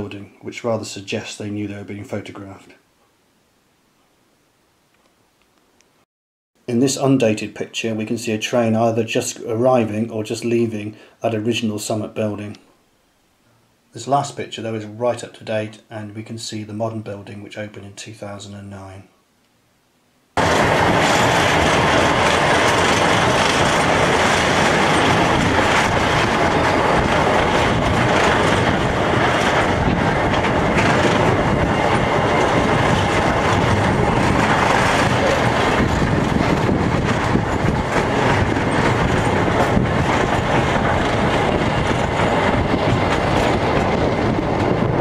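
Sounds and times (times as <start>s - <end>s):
train running noise: 20.4s - 45.0s.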